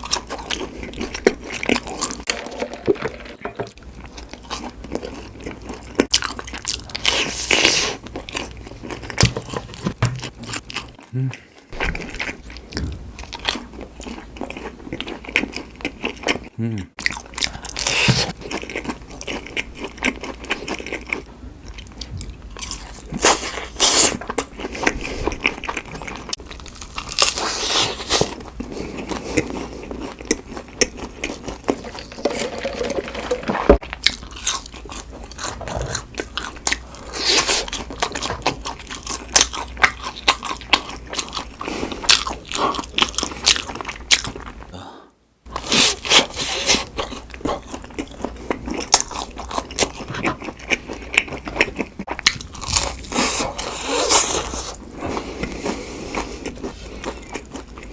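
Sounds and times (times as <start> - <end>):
crunchy bites and chewing: 45.5 - 57.9.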